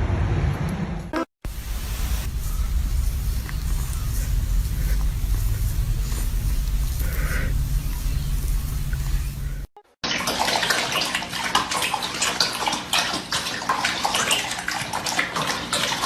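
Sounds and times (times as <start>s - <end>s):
water splashing and sloshing: 1.4s - 16.0s
low rumble: 1.5s - 9.7s.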